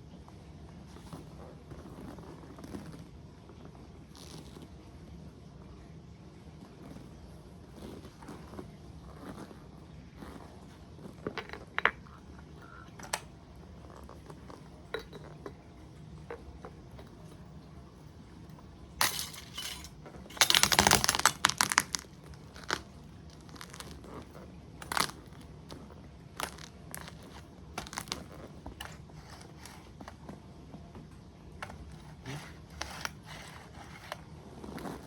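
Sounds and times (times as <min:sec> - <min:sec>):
plastic toy cracking and crunching: 0:12.4 - 0:13.3, 0:19.0 - 0:30.2, 0:31.6 - 0:34.2.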